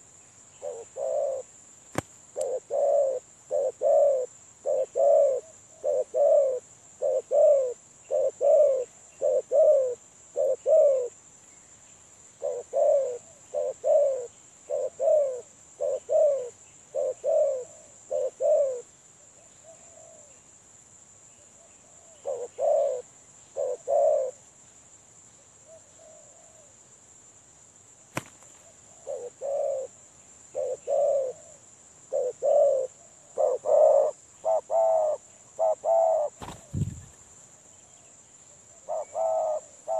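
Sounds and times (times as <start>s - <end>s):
dove cooing: 0.0s - 1.5s, 2.4s - 11.2s, 12.4s - 18.9s, 19.6s - 20.3s, 21.8s - 24.4s, 28.9s - 37.2s, 38.8s - 39.9s.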